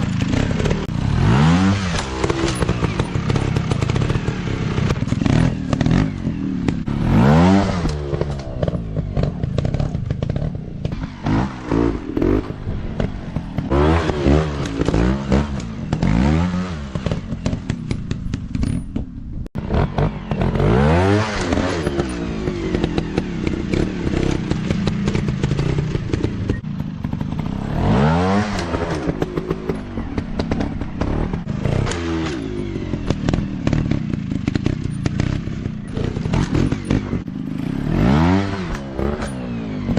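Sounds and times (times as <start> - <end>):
motorcycle engines revving: 0.0 - 39.9
clattering and scraping: 16.9 - 19.3, 28.5 - 37.8.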